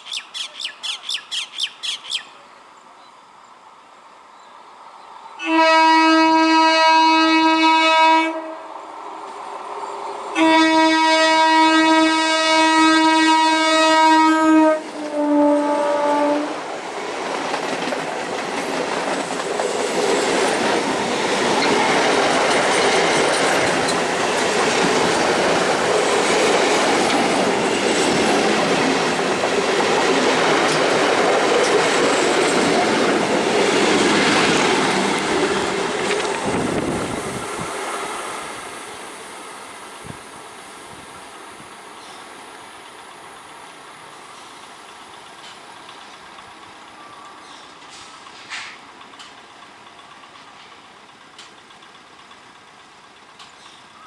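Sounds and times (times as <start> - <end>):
bird squawking: 0.0 - 2.4
train rumbling past: 4.1 - 54.0
train horn blasts: 5.4 - 8.7, 10.4 - 16.6
wheels clacking over rail joints: 16.6 - 37.2, 45.0 - 53.8.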